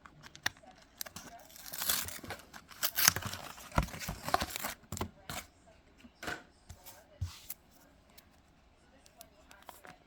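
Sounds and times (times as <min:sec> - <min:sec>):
trading cards rustling and clicking: 0:00.0 - 0:05.5.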